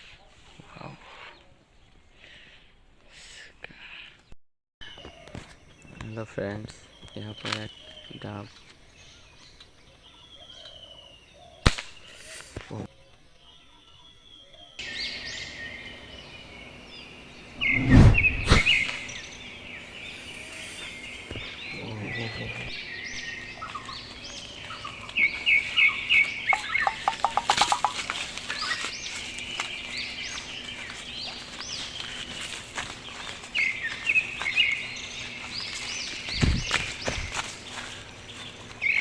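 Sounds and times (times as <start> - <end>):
small birds chirping: 0.0 - 39.0
loud low thuds: 36.1 - 37.4.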